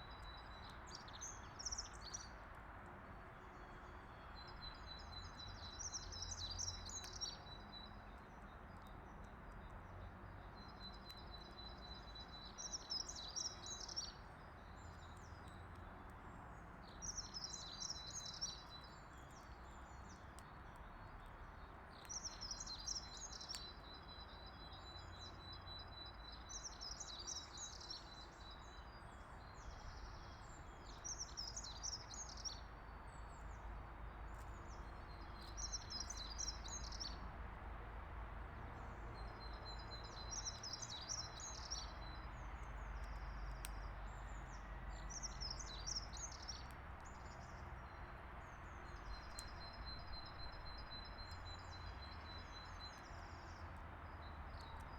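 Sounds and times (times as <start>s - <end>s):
faint low outdoor rumble: 0.0s - 54.9s
songbird singing: 0.0s - 54.9s.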